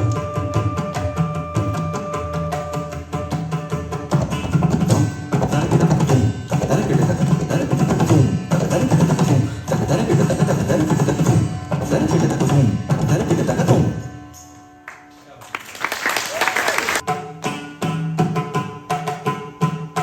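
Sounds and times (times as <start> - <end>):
hand drum fast rhythm: 0.8 - 13.8.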